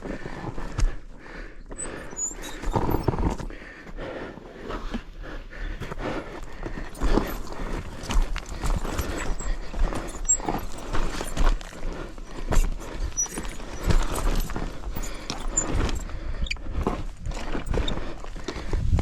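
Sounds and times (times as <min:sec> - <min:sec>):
dirt bike clattering over rocks: 0:06.3 - 0:18.1.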